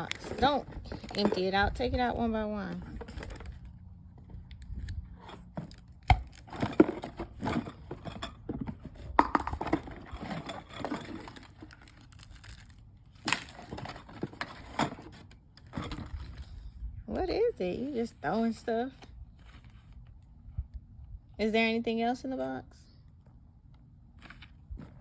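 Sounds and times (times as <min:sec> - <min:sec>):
packaging rustling: 0:00.0 - 0:01.4, 0:09.8 - 0:16.5
plastic pieces clattering: 0:09.3 - 0:15.0.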